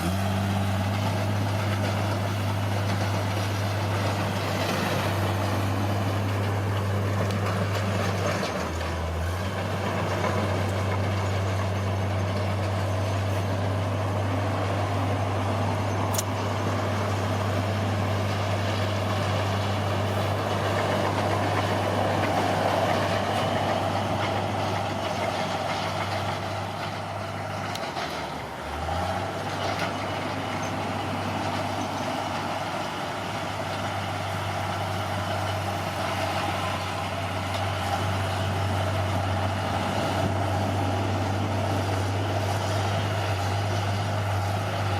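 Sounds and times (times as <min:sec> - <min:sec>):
bulldozer diesel engine: 0:00.0 - 0:44.9.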